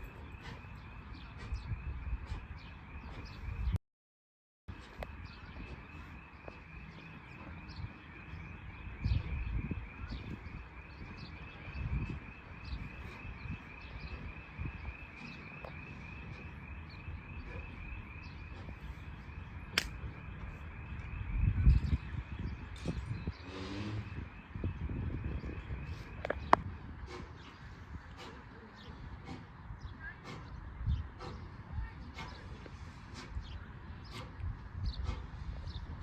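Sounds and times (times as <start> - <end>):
wind rumble on microphone: 0.0 - 3.8, 4.7 - 36.0
sharp click: 19.8 - 20.0.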